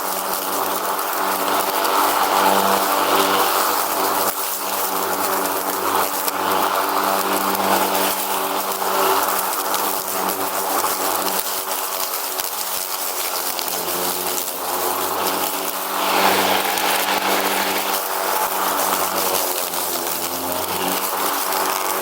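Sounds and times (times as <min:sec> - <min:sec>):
lawn mower engine droning: 0:00.0 - 0:22.0
rushing noise: 0:15.9 - 0:18.8.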